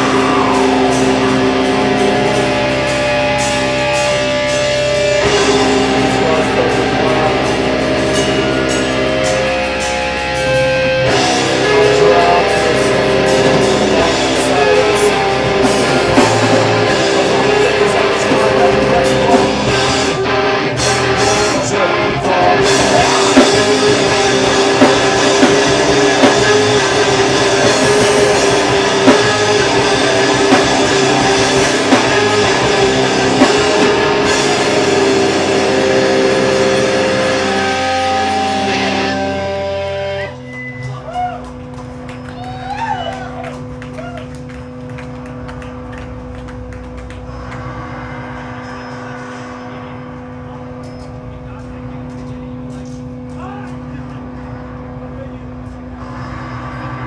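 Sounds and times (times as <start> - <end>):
drum hits: 0.0 - 40.0
electric guitar chords: 0.0 - 40.9.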